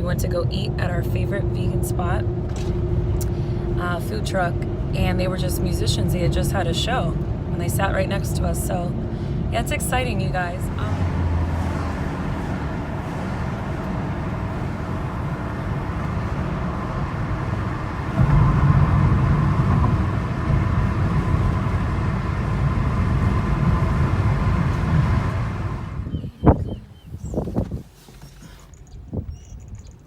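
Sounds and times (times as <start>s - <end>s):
car road rumble inside cabin: 0.0s - 30.0s.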